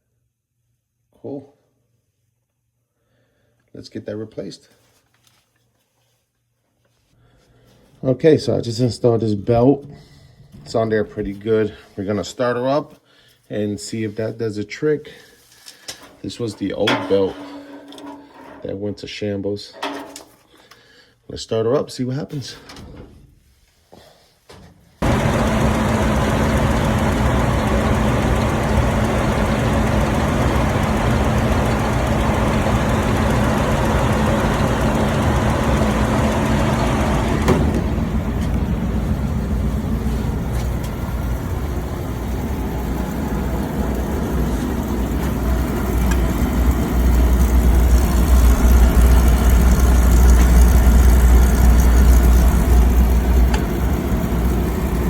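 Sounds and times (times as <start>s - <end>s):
furnace blower hum: 25.0s - 55.0s.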